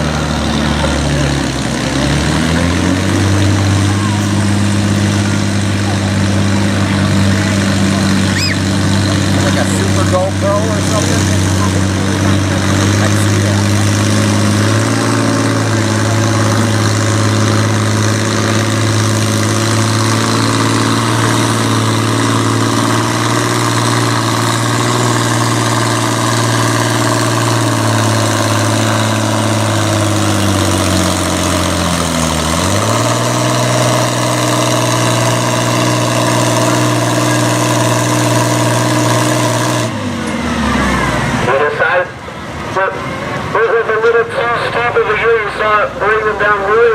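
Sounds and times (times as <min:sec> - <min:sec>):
tractor engine under load: 0:00.0 - 0:46.9.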